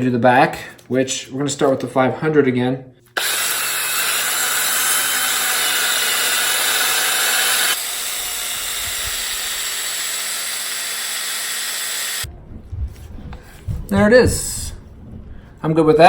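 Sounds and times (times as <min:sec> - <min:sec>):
small power tool whirring: 0:03.2 - 0:12.3.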